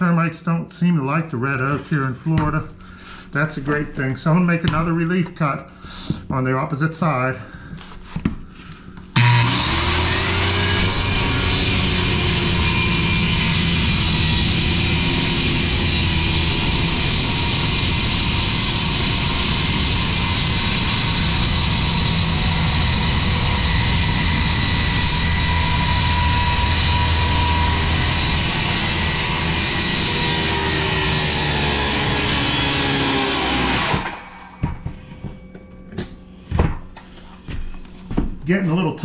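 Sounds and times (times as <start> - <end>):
circular saw cutting wood: 9.2 - 34.9.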